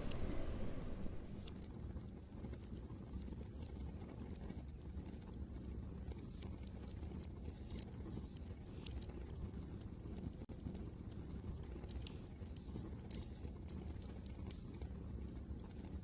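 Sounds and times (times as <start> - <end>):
low rumble of wind: 0.0 - 1.5
wood fire crackling and popping: 0.0 - 1.5.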